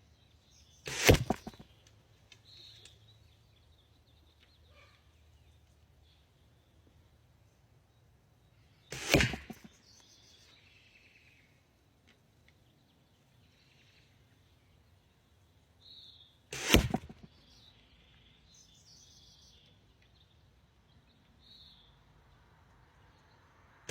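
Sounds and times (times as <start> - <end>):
faint bird chirps: 0.0 - 6.9
longbow shot snap and whoosh: 0.9 - 1.6, 8.9 - 9.7, 16.5 - 17.3.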